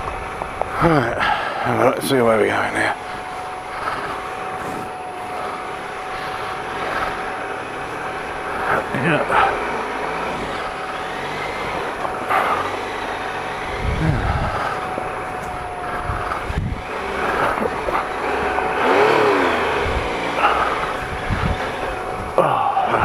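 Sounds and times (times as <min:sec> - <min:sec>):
wind noise on camera: 0:00.0 - 0:00.9, 0:03.7 - 0:05.0, 0:13.6 - 0:23.0
motorcycle engine at low speed: 0:00.0 - 0:23.0.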